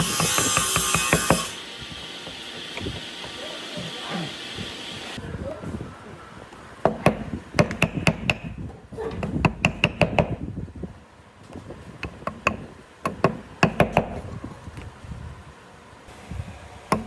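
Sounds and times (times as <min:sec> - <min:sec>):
hammering on wood: 0:00.0 - 0:01.6, 0:06.8 - 0:10.4, 0:12.0 - 0:14.2.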